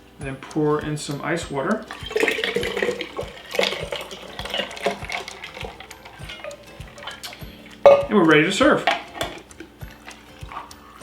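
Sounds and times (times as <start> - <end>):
music with low beat: 0.0 - 11.0
ice clinking against glass: 1.8 - 8.1
water pouring into glass: 1.8 - 11.0.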